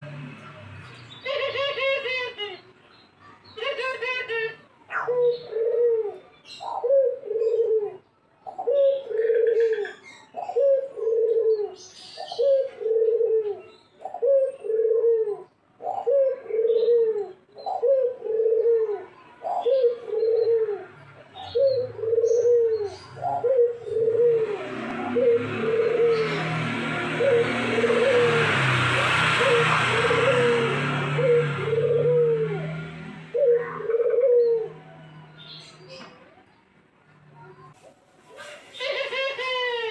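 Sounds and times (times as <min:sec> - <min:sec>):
dove cooing: 0:04.9 - 0:34.8.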